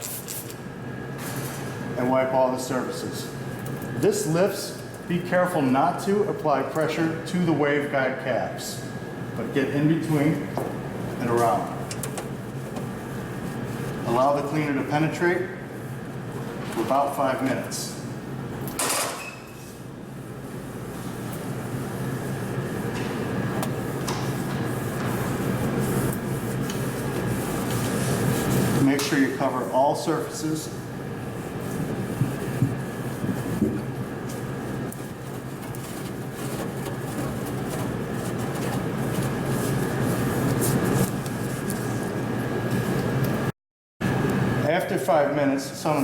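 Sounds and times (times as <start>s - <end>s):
steady low hum: 19.6s - 46.0s.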